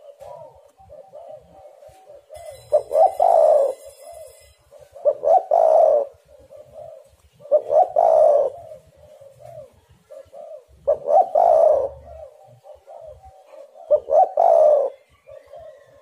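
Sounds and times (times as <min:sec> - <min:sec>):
dove cooing: 0:00.0 - 0:16.0.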